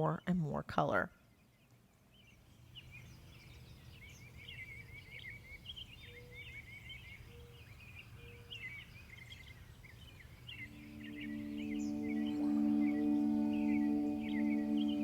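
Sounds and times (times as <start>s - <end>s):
small birds chirping: 0.0s - 15.0s
low held music tone: 10.6s - 15.0s
low steady hum: 10.6s - 15.0s.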